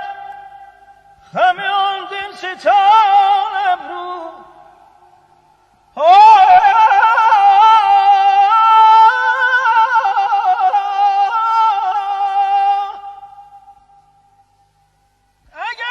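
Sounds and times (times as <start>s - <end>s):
person singing wordless trills: 6.0s - 13.8s.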